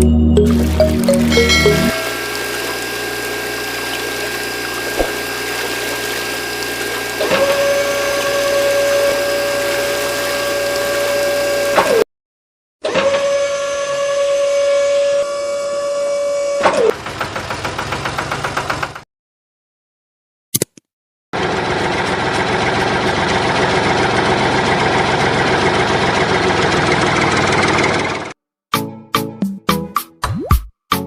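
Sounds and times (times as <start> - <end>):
high motor whine: 0.8 - 12.0
small motors humming: 1.4 - 12.0
rapid motor pulsing: 1.5 - 12.0.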